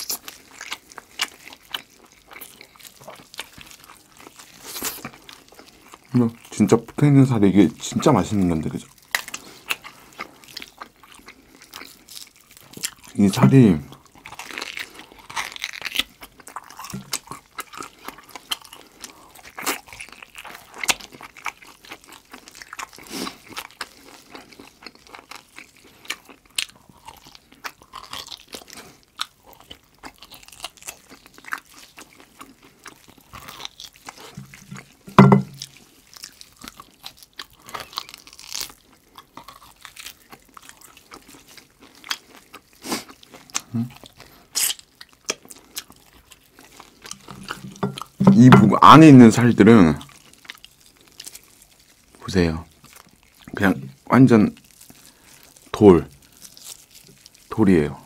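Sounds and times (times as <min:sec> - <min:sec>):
chewing and biting meat: 0:00.0 - 0:58.0
low thump: 0:35.1 - 0:35.6.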